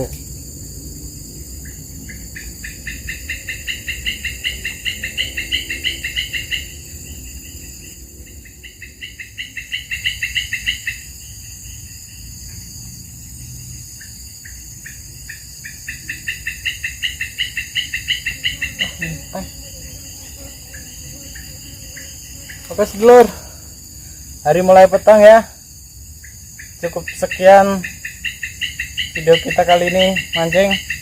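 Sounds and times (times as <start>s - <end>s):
high-pitched insect hum: 0.0s - 31.0s
chirping animal calls: 1.6s - 7.0s, 15.7s - 23.4s.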